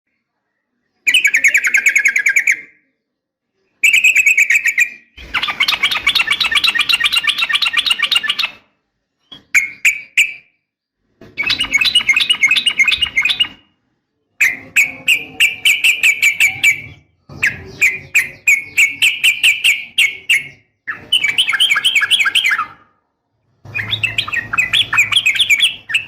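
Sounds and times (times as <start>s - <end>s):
bird chattering trills: 3.8s - 8.6s, 11.4s - 13.6s, 14.4s - 22.8s, 23.7s - 26.0s.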